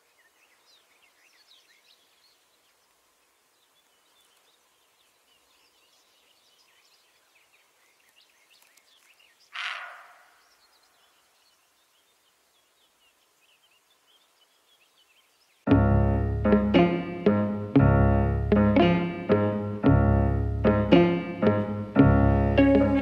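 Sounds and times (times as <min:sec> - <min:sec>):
faint bird chirping: 0:00.0 - 0:15.7
deer hoarse bark: 0:09.6 - 0:10.4.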